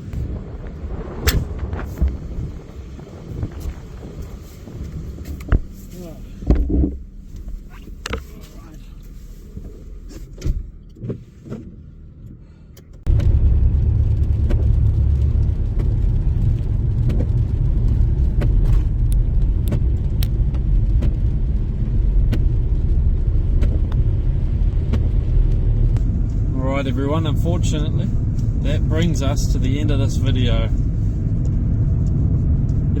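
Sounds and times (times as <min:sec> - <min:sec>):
car road rumble: 0:00.0 - 0:33.0
light ticks: 0:15.2 - 0:21.2.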